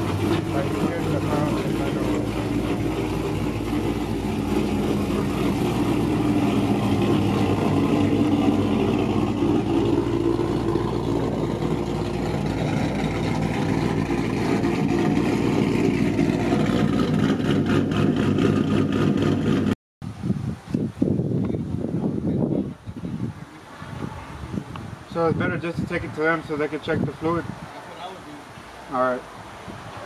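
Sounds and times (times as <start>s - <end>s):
car engine running: 0.0s - 19.8s.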